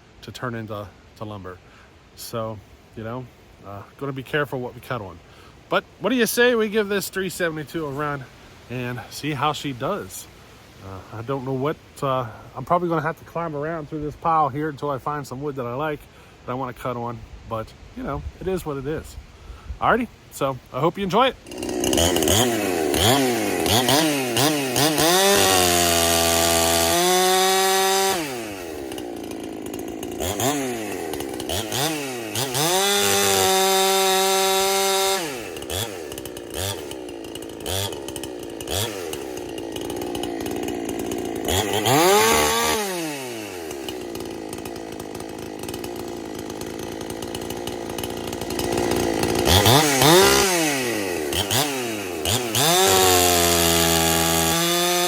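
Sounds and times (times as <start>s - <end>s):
chainsaw revving: 21.0s - 55.0s.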